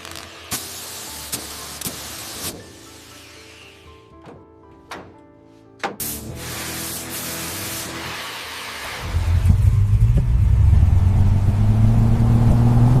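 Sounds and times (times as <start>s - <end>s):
hiss: 0.0s - 3.9s, 6.0s - 9.6s
car engine steady note: 8.6s - 13.0s.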